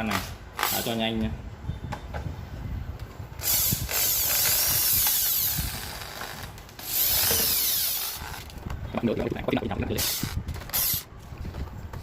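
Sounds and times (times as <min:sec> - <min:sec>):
power drill driving screws: 0:03.4 - 0:08.5, 0:10.0 - 0:11.1.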